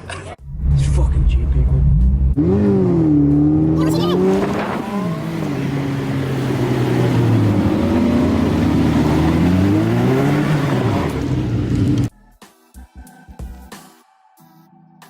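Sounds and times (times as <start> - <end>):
car engine revving: 0.4 - 12.1.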